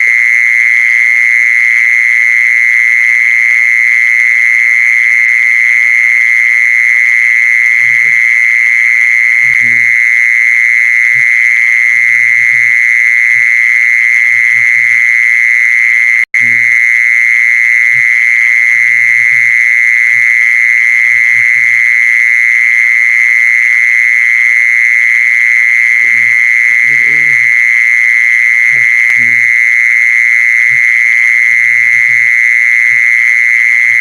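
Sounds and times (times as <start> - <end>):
faint short low calls: 26.0 - 27.6, 28.7 - 29.5.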